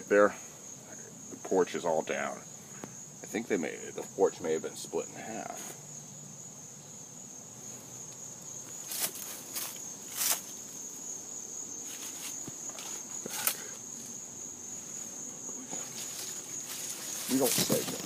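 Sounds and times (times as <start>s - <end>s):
insects chirring: 0.0s - 18.0s
footsteps: 8.7s - 10.5s, 11.8s - 14.2s, 14.8s - 18.0s.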